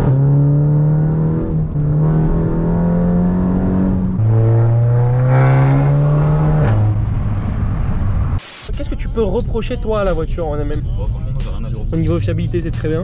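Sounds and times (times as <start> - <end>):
car engine accelerating hard: 0.0 - 8.4.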